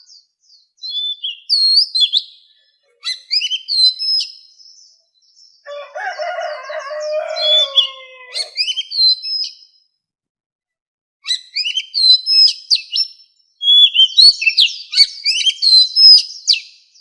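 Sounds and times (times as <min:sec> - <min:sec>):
bird whistled song: 0:00.0 - 0:05.8, 0:07.0 - 0:09.8, 0:11.2 - 0:17.0
bird drawn-out low call: 0:05.7 - 0:08.8.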